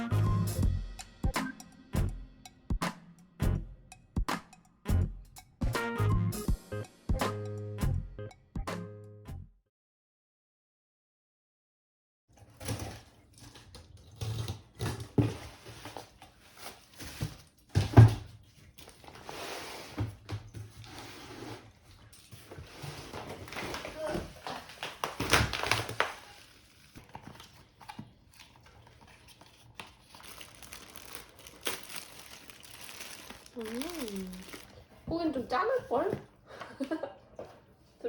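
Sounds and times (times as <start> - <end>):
objects knocking and thudding: 17.0 - 18.4
rustling: 20.6 - 35.0.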